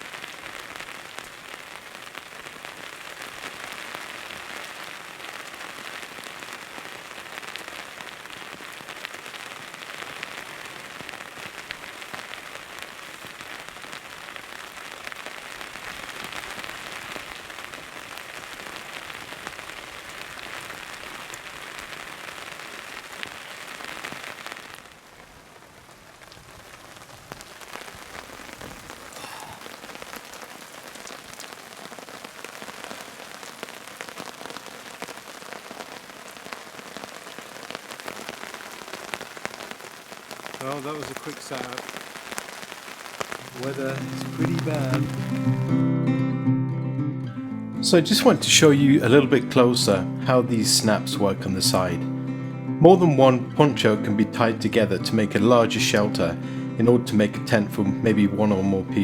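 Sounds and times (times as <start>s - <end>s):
heavy rain falling: 0.0s - 46.2s, 47.8s - 59.0s.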